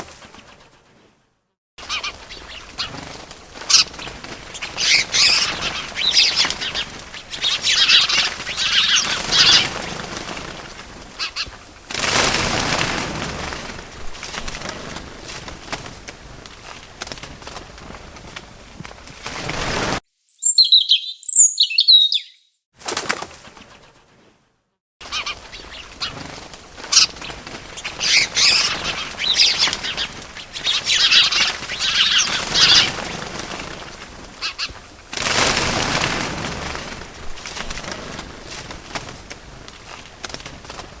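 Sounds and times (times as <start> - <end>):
wing flapping: 0.0 - 20.0, 22.8 - 41.0
small birds chirping: 1.8 - 11.8, 20.1 - 22.6, 25.0 - 33.8.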